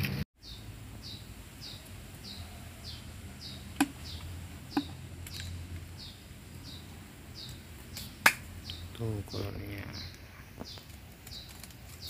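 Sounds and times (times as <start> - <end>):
small bird chirping: 0.4 - 12.0.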